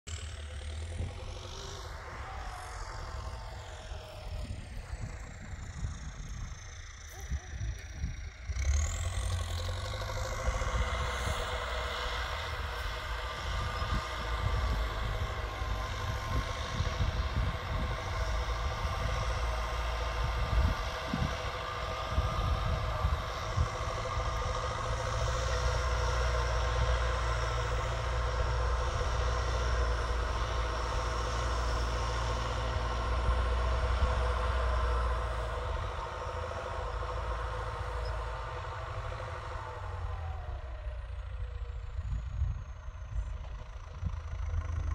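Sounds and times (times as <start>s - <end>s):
tractor diesel engine running: 0.0s - 44.9s
engine knocking clatter: 3.7s - 12.1s, 35.6s - 44.9s.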